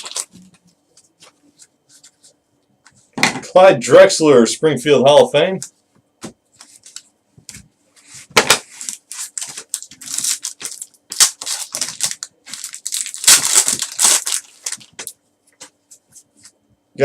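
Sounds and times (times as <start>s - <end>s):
wrapper crinkling and tearing: 0.0s - 0.5s, 8.7s - 15.2s.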